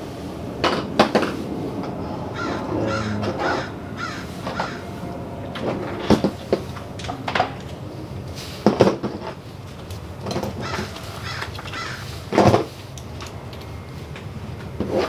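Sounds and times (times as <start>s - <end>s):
harsh bird calls: 2.2s - 5.0s, 10.6s - 12.2s.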